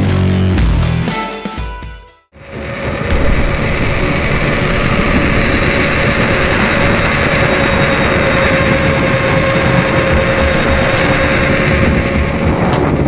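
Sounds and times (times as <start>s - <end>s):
high electric motor whine: 2.4s - 13.0s
wind rush on microphone: 2.4s - 13.0s.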